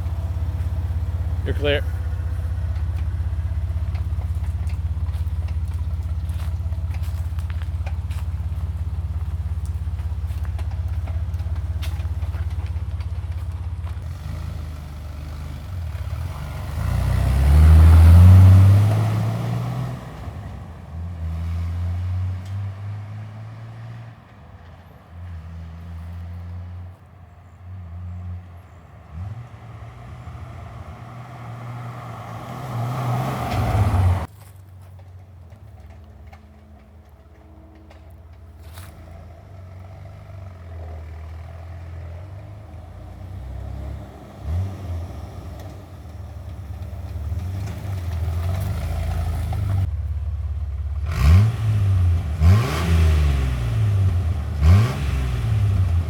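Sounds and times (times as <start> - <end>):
car engine idling: 0.0 - 18.8, 28.4 - 56.0
car engine revving while driving: 13.9 - 24.1, 28.0 - 34.3, 39.0 - 49.9, 51.0 - 56.0.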